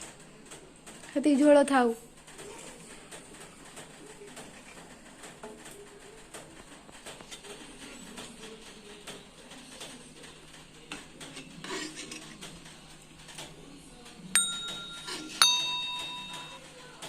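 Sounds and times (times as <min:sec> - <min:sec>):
pot scraping and handling: 0:11.2 - 0:12.7
metal utensil clinking on pot: 0:14.4 - 0:16.8.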